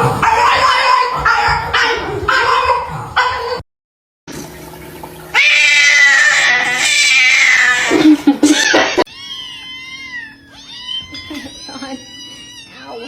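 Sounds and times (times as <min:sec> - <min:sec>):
cat yowling: 0:00.0 - 0:03.6, 0:05.3 - 0:13.0.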